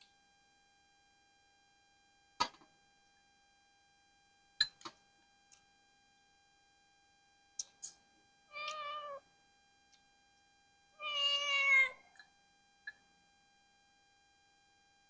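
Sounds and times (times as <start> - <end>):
cat meowing: 8.5 - 9.2, 11.0 - 12.0.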